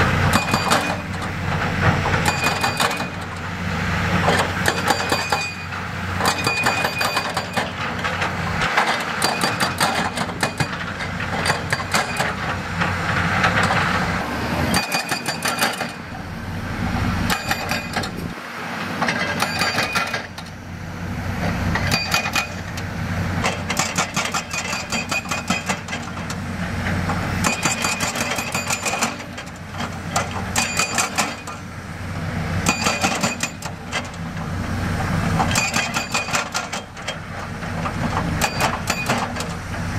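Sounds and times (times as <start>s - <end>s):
diesel machinery running: 0.0s - 39.9s
metal clanks and rattling: 4.2s - 14.0s, 14.7s - 16.0s, 19.0s - 20.5s, 21.7s - 31.6s.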